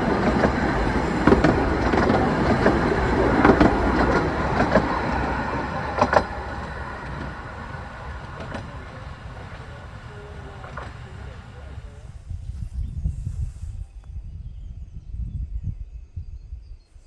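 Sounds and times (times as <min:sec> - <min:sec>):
wheels clicking over rail joints: 0:00.0 - 0:11.9
miniature train running past: 0:00.0 - 0:12.3.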